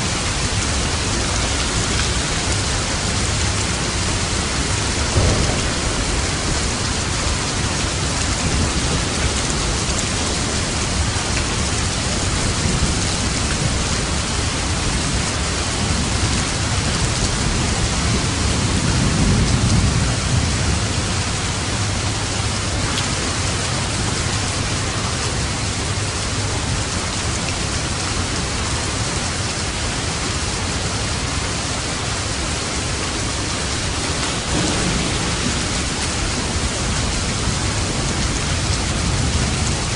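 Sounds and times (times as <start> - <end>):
low rumble of thunder: 0.0 - 31.3, 32.4 - 39.9
heavy rain: 0.0 - 39.9.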